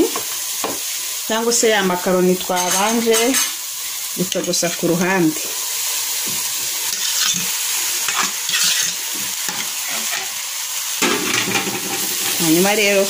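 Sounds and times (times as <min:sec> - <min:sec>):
food sizzling in a pot: 0:00.0 - 0:13.0
wooden spoon scraping a pot: 0:06.4 - 0:10.4.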